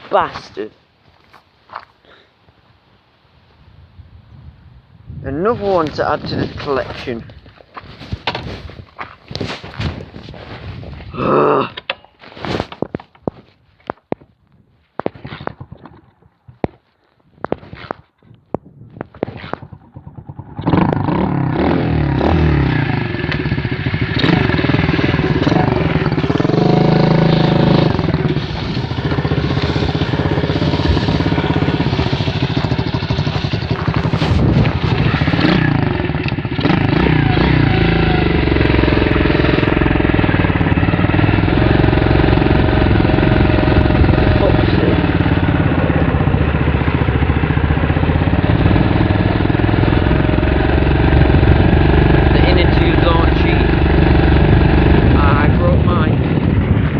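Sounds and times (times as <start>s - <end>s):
pit bike engine running: 19.4s - 56.9s.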